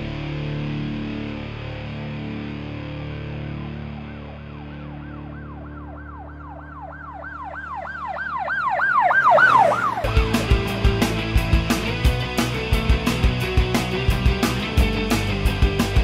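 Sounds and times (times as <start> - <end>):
rock music with drums and guitar: 0.0 - 6.5, 9.2 - 16.0
siren wail: 3.8 - 10.6.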